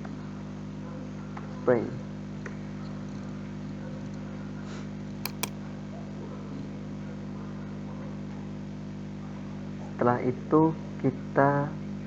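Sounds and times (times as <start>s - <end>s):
quick sharp clicks: 5.3s - 5.5s.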